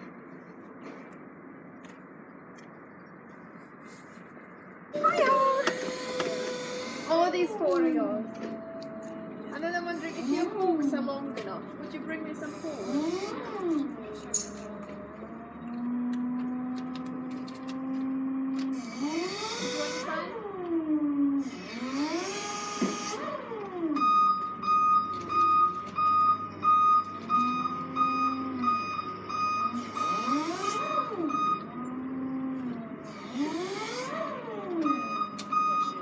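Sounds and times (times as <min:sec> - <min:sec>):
warning beeper: 0:05.0 - 0:16.0, 0:23.9 - 0:32.1
forklift motor whining: 0:05.0 - 0:36.0
hydraulic pump humming: 0:05.0 - 0:36.0.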